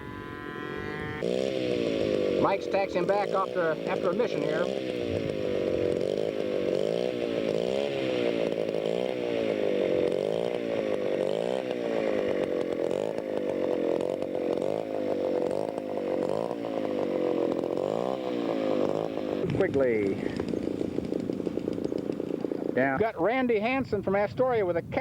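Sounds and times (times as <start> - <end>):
model airplane engine: 0.0 - 25.0.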